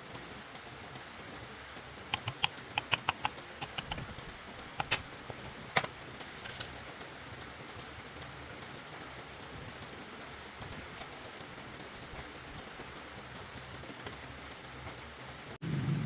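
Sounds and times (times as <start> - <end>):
light sharp clicks and taps: 2.1 - 6.8.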